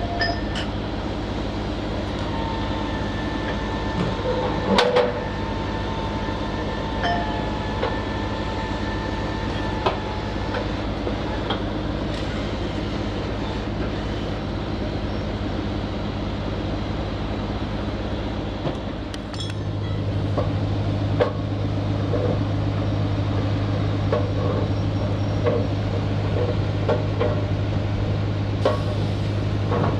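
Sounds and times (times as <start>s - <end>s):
diesel engine running: 0.0s - 29.9s
metallic clanks and knocks: 19.3s - 20.5s.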